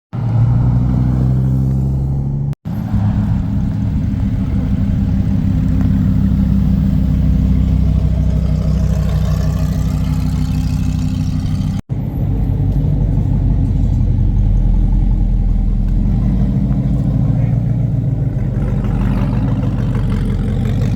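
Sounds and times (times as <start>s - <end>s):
car engine running: 0.6s - 20.9s.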